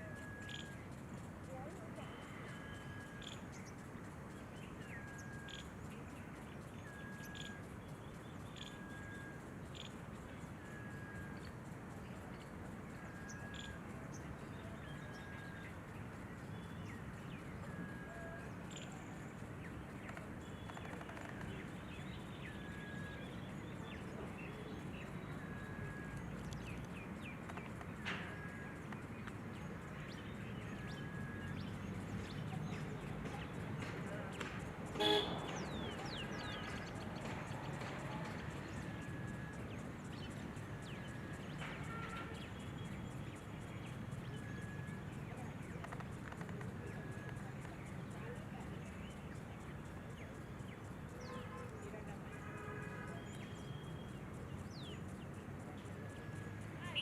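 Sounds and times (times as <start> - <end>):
background hiss: 0.0 - 57.0
bird chirps: 0.0 - 57.0
bird whistled note: 35.0 - 35.8.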